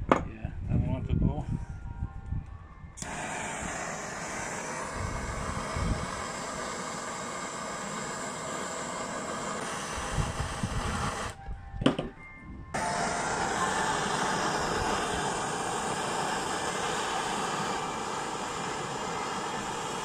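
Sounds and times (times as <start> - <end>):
torch flame roaring: 3.0 - 11.4, 12.8 - 20.0.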